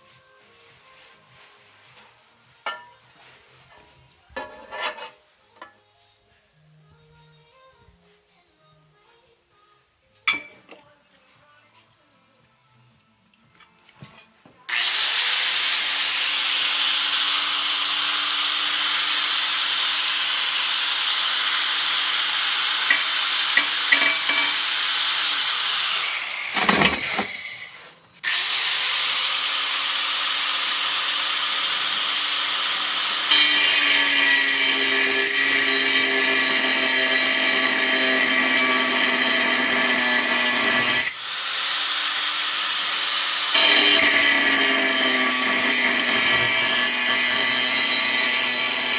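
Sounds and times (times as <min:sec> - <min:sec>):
power tool cutting steel: 0:14.7 - 0:48.9.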